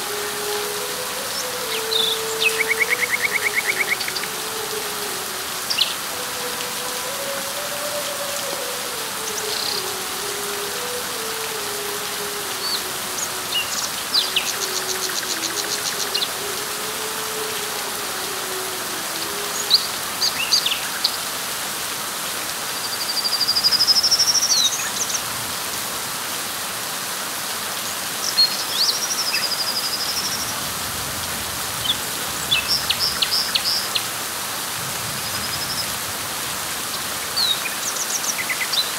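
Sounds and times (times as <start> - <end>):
birds chirping: 0.0 - 21.2
rising whistled bird calls: 0.0 - 21.2
rain falling on leaves: 0.0 - 38.9.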